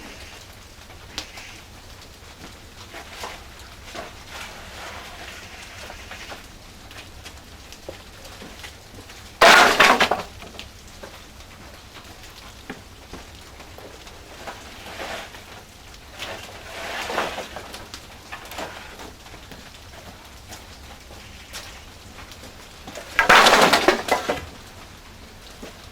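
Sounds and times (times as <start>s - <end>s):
hard objects crashing: 2.4s - 6.4s, 9.3s - 10.7s, 13.7s - 19.2s, 20.0s - 25.9s.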